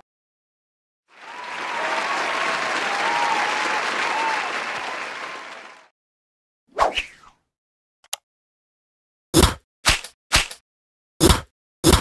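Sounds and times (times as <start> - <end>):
crowd applause: 1.1 - 5.9
faint cheers: 1.1 - 5.9.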